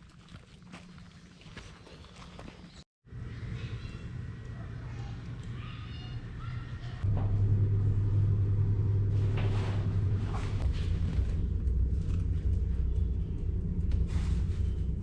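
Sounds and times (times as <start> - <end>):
car engine rumbling: 7.0 - 15.0.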